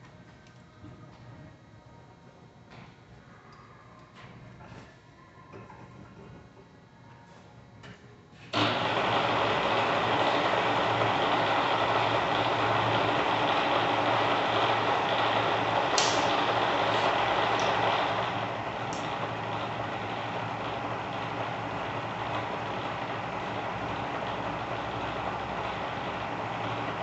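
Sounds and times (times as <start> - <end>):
mill motor whirring hum: 8.5 - 27.0.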